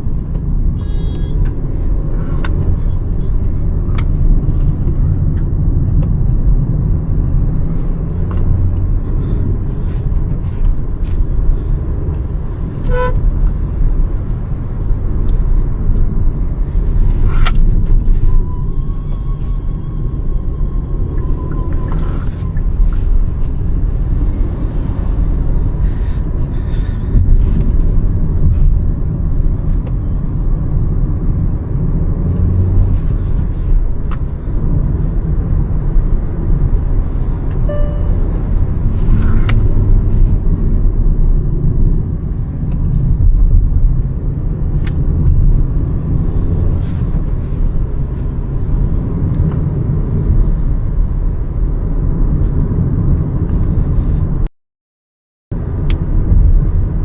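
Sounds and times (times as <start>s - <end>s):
car engine and road rumble: 0.0s - 54.5s, 55.5s - 57.0s
short tones and clicks: 37.6s - 38.4s.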